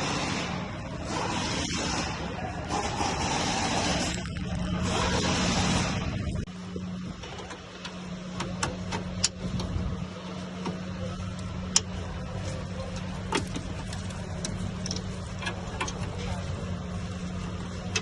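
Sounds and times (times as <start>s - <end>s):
steady low hum: 0.0s - 18.0s
metal clicks and taps of hand tools: 11.7s - 11.9s.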